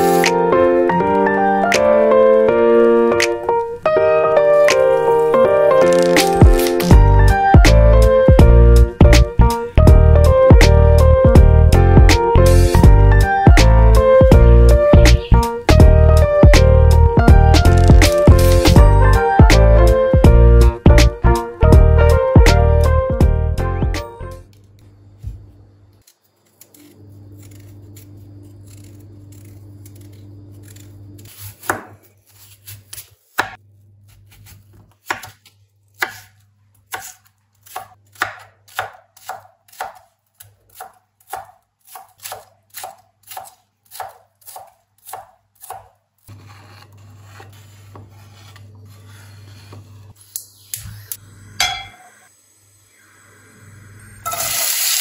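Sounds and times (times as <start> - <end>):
knife chopping on cutting board: 31.3 - 48.6.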